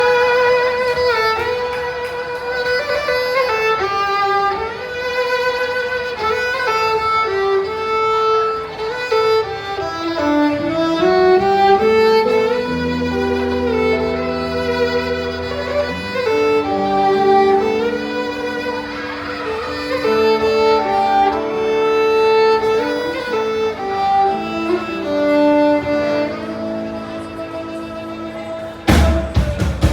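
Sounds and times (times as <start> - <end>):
fiddle playing slow melody: 0.0 - 29.6
low sustained accompaniment: 8.7 - 29.1.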